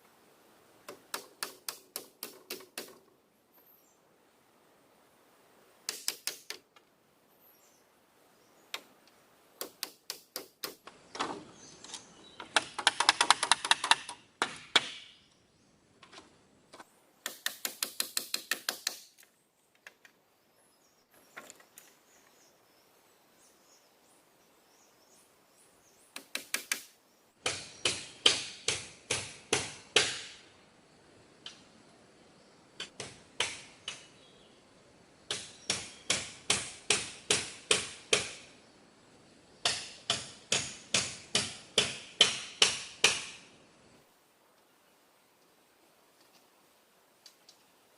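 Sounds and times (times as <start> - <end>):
tool striking wood: 17.2 - 19.1, 26.2 - 30.4, 32.9 - 34.1, 35.3 - 38.5, 39.6 - 43.5.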